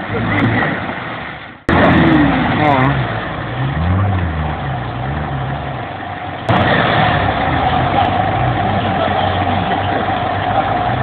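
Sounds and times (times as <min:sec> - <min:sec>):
engine with steady whine: 0:01.4 - 0:11.0
vehicle engine running: 0:01.6 - 0:11.0.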